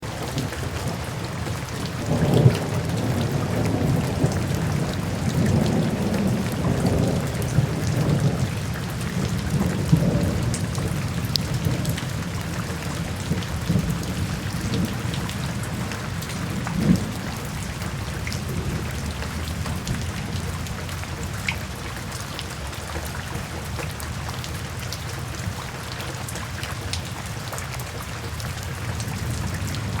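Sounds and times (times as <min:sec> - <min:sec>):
steady rain: 0:00.0 - 0:30.0
thunder rolling: 0:00.1 - 0:21.4.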